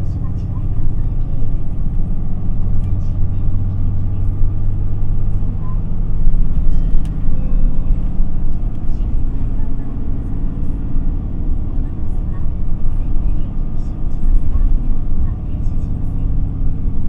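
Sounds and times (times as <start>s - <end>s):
bus diesel engine drone: 0.0s - 17.0s
faint cabin rattles and clicks: 5.3s - 10.6s.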